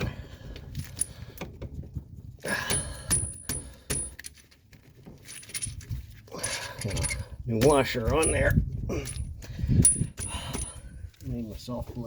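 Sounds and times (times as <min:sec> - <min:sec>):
metal clinks and taps: 0:02.7 - 0:04.5, 0:05.2 - 0:07.3.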